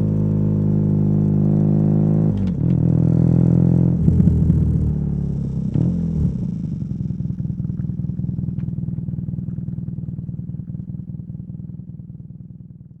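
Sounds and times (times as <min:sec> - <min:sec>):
motorcycle engine idling: 0:04.0 - 0:13.0.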